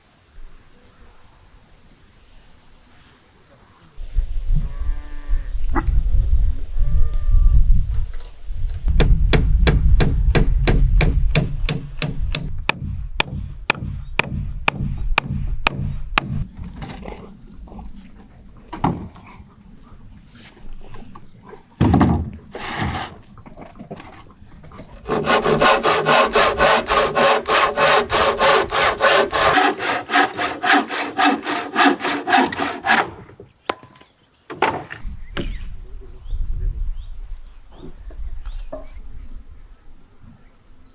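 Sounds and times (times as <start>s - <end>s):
hand saw cutting wood: 22.5s - 23.2s, 24.0s - 33.2s.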